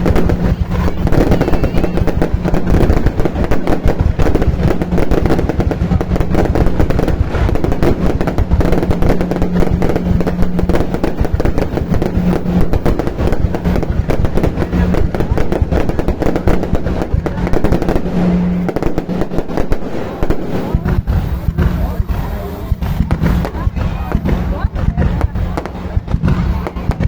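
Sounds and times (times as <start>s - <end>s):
steady low hum: 0.0s - 19.1s
fireworks bangs and crackles: 0.0s - 27.0s.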